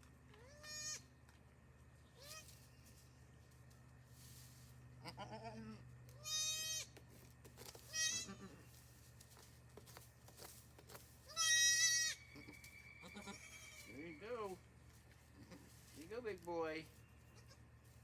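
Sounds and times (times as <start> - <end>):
goat bleating: 0.3 - 1.1, 2.2 - 2.6, 5.0 - 7.0, 7.8 - 8.8, 11.2 - 14.6, 15.3 - 15.8, 17.2 - 17.8.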